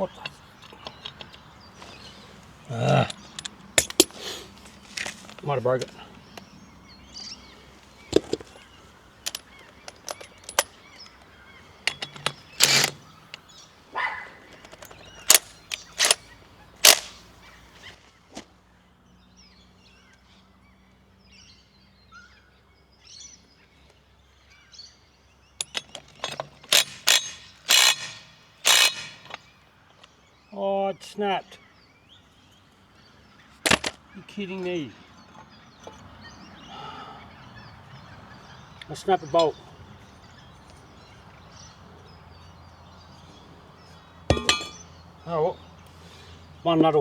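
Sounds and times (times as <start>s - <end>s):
faint birds calling: 0.0s - 47.0s
bolt snapping: 2.7s - 6.5s, 8.1s - 13.5s, 14.5s - 17.4s, 25.6s - 29.4s, 33.7s - 34.0s
metallic tool clicks and knocks: 3.0s - 4.2s, 44.3s - 44.8s.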